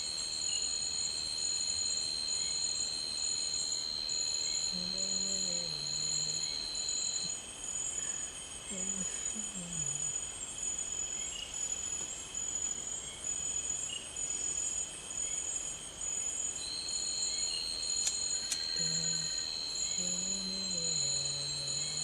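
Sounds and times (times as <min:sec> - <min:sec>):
insect whining: 0:00.0 - 0:08.1, 0:16.6 - 0:22.0
insects trilling: 0:00.0 - 0:22.0
faint clicks: 0:18.0 - 0:18.8.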